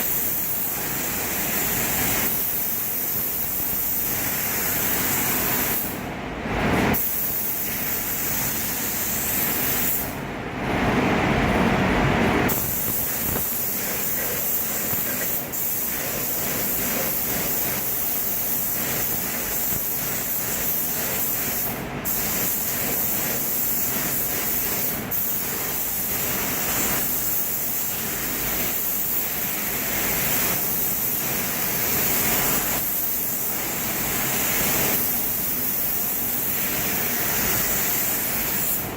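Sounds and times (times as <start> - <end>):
paint spray gun hissing: 0.0 - 6.0, 7.0 - 10.1, 12.5 - 38.9
exhaust fan rushing: 4.2 - 27.1.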